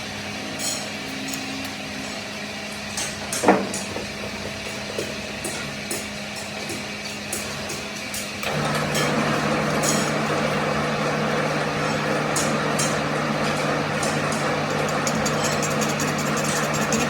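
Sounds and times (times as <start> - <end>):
machine motor humming: 8.4 - 17.0.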